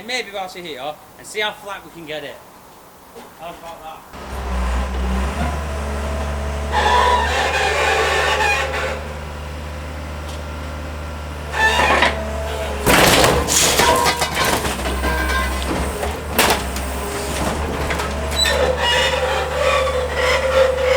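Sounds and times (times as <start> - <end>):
metal squealing and creaking: 6.6 - 9.2, 11.5 - 20.9
loud metal crunching: 11.4 - 20.9.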